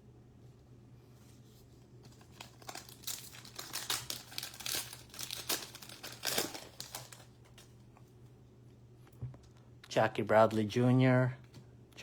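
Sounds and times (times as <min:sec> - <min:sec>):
foil wrapper crinkling and tearing: 0:02.0 - 0:07.7.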